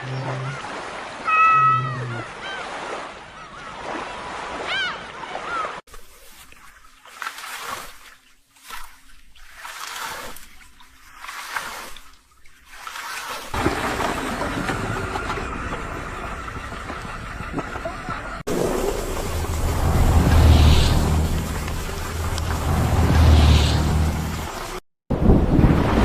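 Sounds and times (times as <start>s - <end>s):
water-like rushing noise: 12.7s - 26.0s
low rumble: 14.8s - 25.9s.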